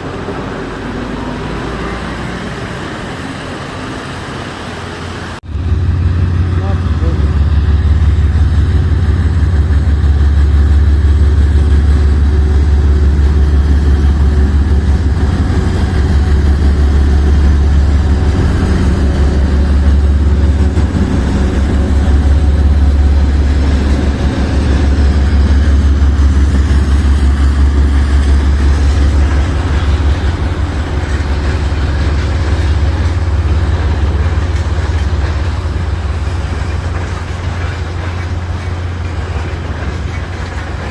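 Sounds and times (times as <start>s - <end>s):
train rumbling close by: 0.0s - 40.9s.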